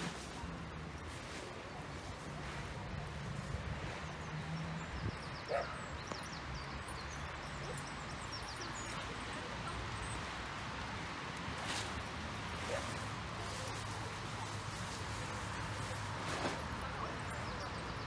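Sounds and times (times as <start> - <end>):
small birds chirping: 2.4 - 10.2.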